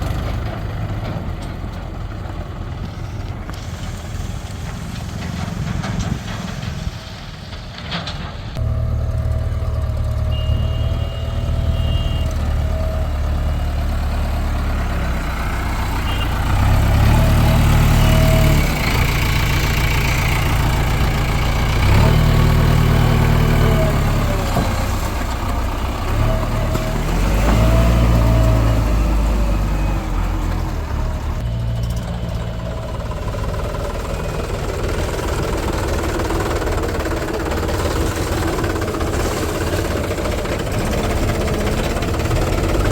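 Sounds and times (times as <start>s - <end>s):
diesel engine revving: 0.0s - 42.9s
thin engine whine: 2.9s - 25.2s.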